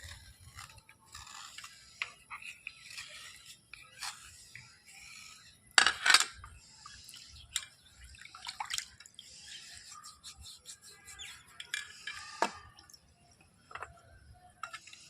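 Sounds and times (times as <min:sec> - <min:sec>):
water dripping and splashing: 0:07.5 - 0:09.4.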